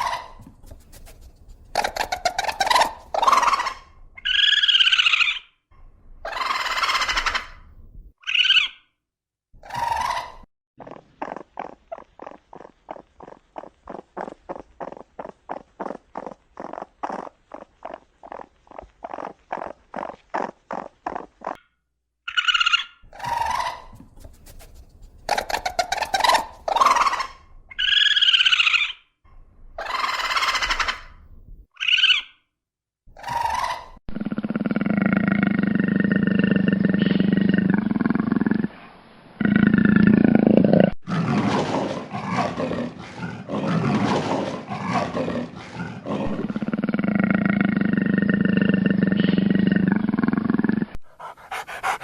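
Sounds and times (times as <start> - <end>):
long loud animal roars: 34.1 - 38.8, 39.4 - 51.0
quick animal call pulses: 51.0 - 52.0.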